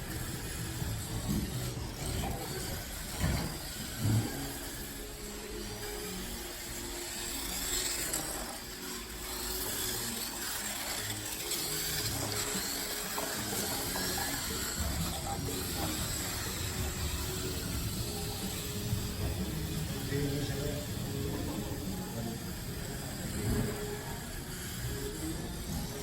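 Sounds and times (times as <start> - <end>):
faint voices: 0.0 - 26.0
small electric motors whining: 0.0 - 26.0.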